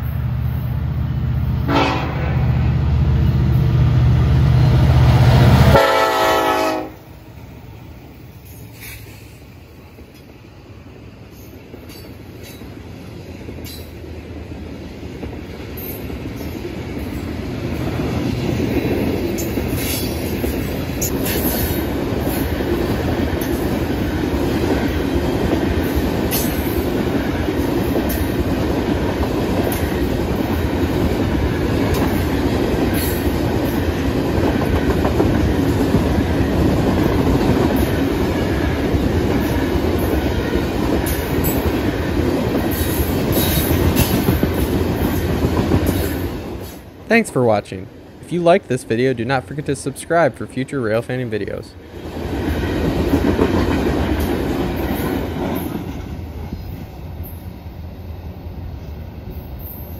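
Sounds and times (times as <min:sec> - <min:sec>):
train wheels rumbling on rails: 0:00.0 - 0:59.9
clickety-clack of wheels: 0:15.0 - 0:46.8, 0:52.0 - 0:56.8.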